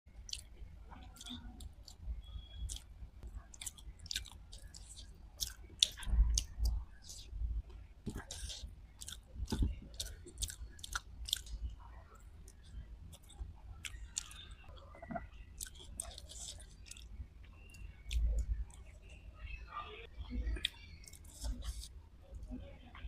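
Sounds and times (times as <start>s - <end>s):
chewing and wet mouth smacks: 0.2s - 2.0s, 2.6s - 11.6s, 12.5s - 18.9s.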